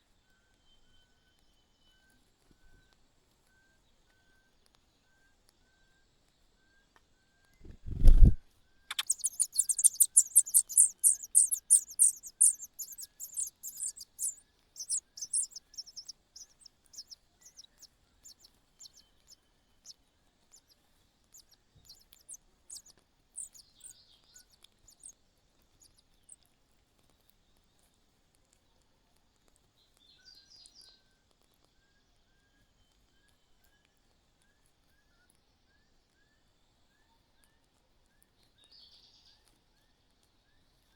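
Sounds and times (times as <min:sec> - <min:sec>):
nestlings cheeping: 0:08.0 - 0:19.9, 0:21.3 - 0:25.1.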